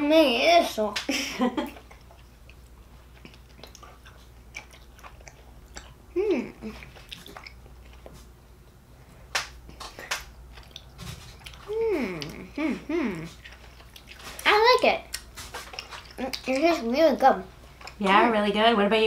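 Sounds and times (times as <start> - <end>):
chewing soft candy: 1.7 - 8.8, 9.7 - 17.0
person humming mmm: 6.1 - 6.9, 11.6 - 13.4.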